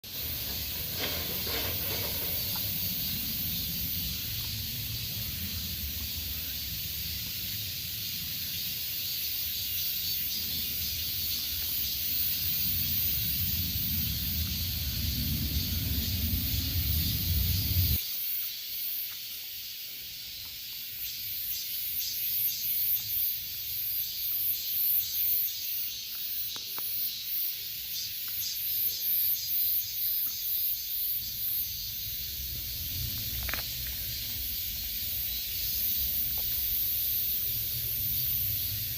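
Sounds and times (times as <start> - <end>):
cicadas buzzing: 0.0 - 38.9
low rumble: 12.2 - 18.0, 32.0 - 38.9.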